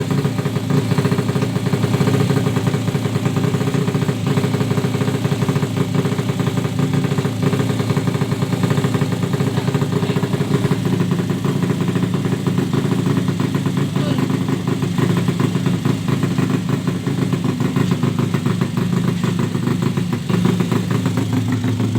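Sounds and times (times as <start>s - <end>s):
motorcycle engine idling: 0.0s - 21.9s.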